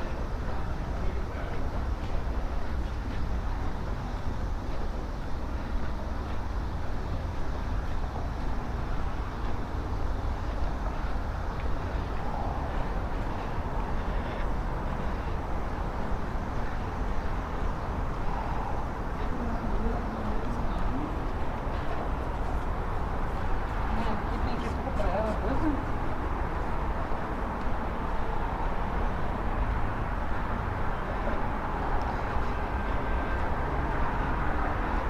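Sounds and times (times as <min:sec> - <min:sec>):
faint distant voices: 0:10.4 - 0:35.0.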